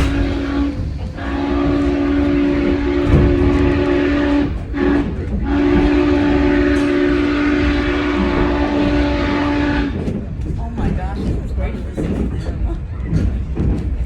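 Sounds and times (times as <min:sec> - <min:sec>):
steam whistle blasts: 0:00.0 - 0:09.9
train rumbling on rails: 0:00.0 - 0:14.0.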